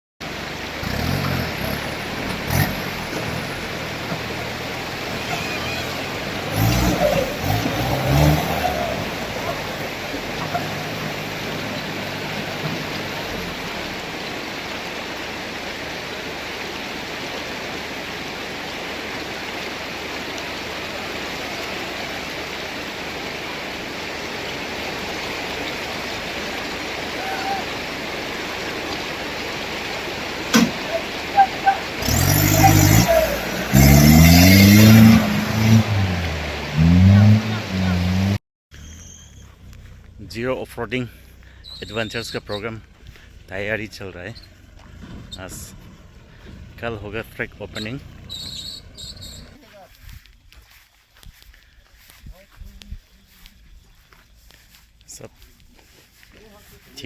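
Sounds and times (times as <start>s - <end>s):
off-road vehicle engine revving: 0.2s - 49.9s
brief voices: 1.5s - 14.0s, 27.0s - 28.0s, 30.6s - 33.8s, 34.8s - 49.9s.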